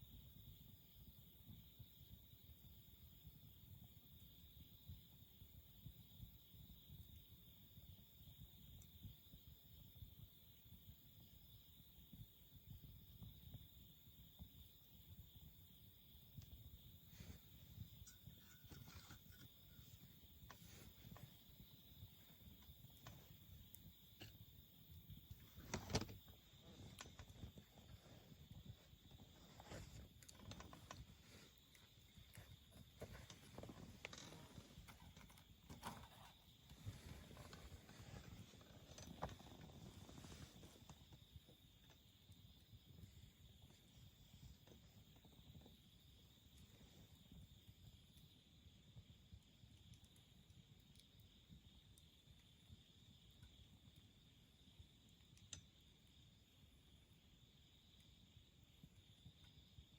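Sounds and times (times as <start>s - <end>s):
campfire crackling: 0.0s - 59.9s
insects chirring: 0.0s - 59.9s
wood crackling pop: 16.4s - 28.0s.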